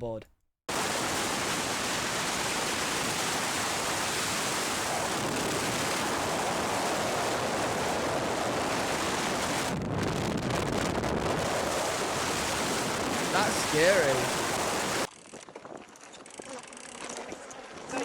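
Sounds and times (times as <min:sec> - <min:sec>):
water moving: 0:00.7 - 0:15.1
wind buffeting microphone: 0:00.7 - 0:16.0.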